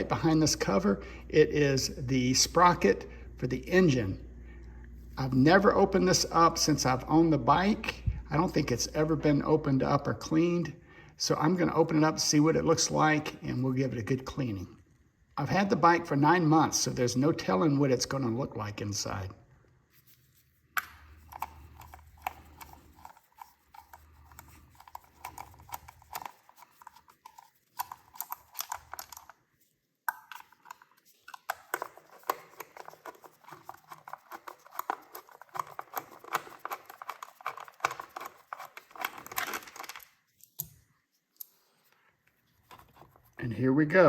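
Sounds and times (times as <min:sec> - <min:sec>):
hand tools clicking and rattling: 0:21.2 - 0:29.3, 0:30.1 - 0:40.0.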